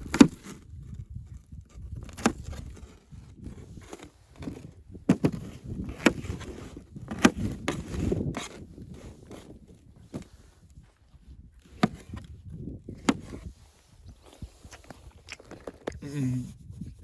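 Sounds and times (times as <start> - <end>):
wood chopping strikes: 0.0 - 0.5.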